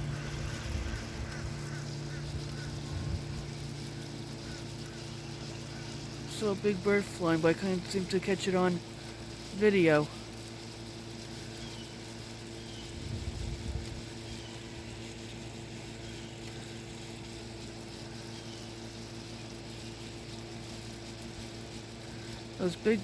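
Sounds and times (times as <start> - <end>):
mechanical hum: 0.0 - 23.0
faint bird chirps: 11.3 - 20.4.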